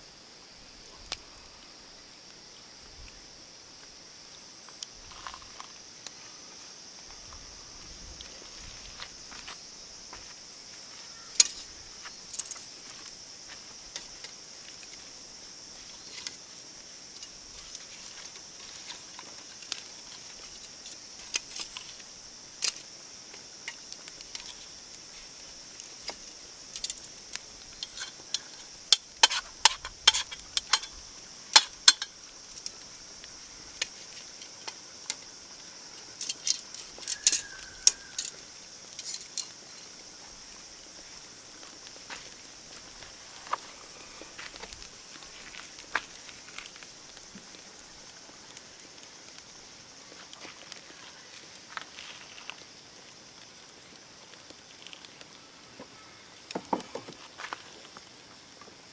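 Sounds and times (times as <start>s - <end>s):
steady high-pitched hiss: 0.0s - 58.9s
sharp clicks and clinks: 27.8s - 32.7s.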